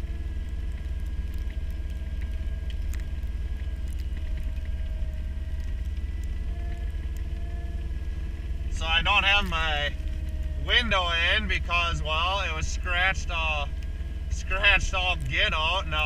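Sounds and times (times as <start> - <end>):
diesel engine droning: 0.0 - 16.0.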